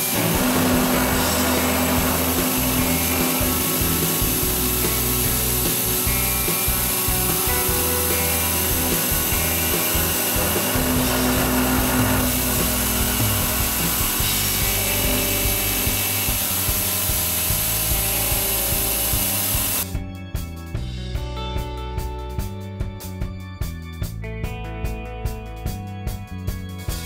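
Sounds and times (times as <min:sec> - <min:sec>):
router spindle cutting metal: 0:00.0 - 0:19.9
music: 0:00.0 - 0:27.0.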